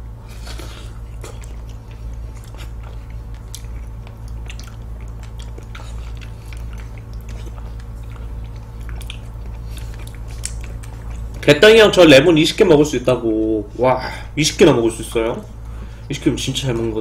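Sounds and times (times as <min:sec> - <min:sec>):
steady low hum: 0:00.0 - 0:17.0
wet mouth chewing sounds: 0:00.2 - 0:12.0.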